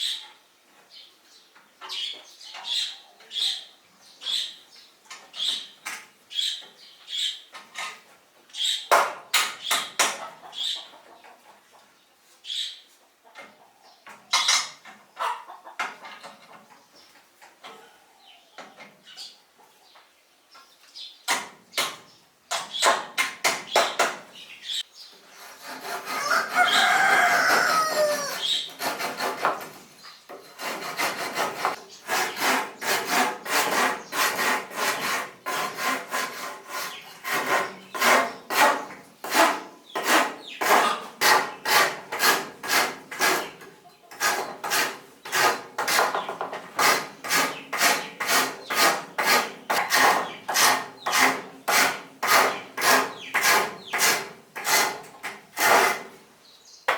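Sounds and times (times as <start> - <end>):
hand saw cutting wood: 25.3 - 56.2
rooster crowing: 26.1 - 28.5.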